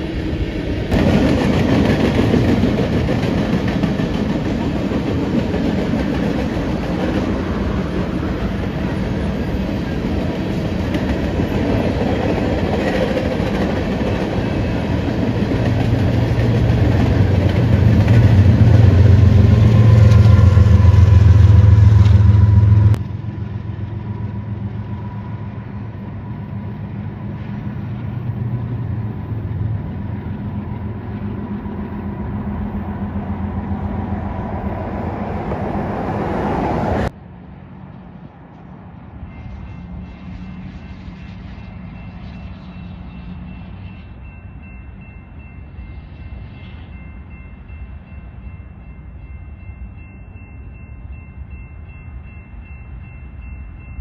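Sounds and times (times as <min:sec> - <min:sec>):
distant freight train rumble: 0:00.0 - 0:54.0
freight train wheels clattering: 0:00.9 - 0:24.7.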